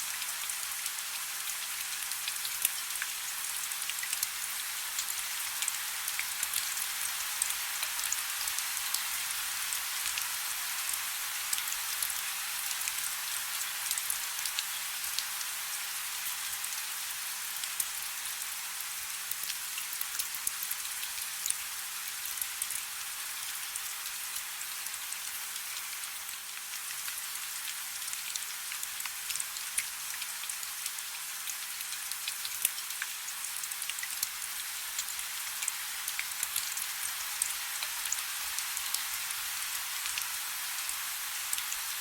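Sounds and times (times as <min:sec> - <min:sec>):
soft rain with drop ticks: 0:00.1 - 0:17.0, 0:17.6 - 0:42.0.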